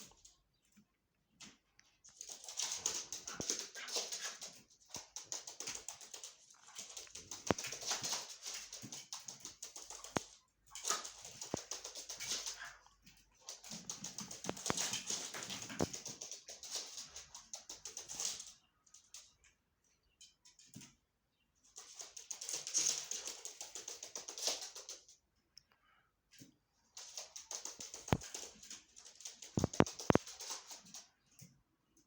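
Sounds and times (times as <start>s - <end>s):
chicks ticking high-pitched: 29.5s - 30.4s.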